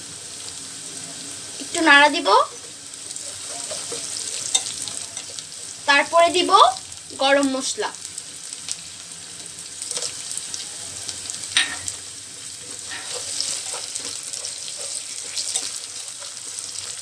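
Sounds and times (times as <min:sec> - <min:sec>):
onions sizzling in hot oil: 0:00.0 - 0:17.0
spoon scraping a pan: 0:02.5 - 0:05.5, 0:09.4 - 0:10.3, 0:11.5 - 0:17.0.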